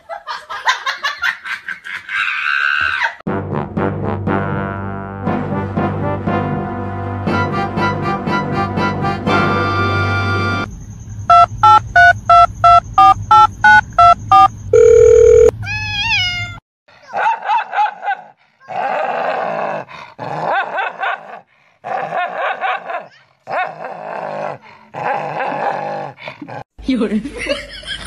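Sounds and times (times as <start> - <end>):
rapid electronic beeps: 11.0 - 15.5
dog snarling and growling: 18.6 - 26.7.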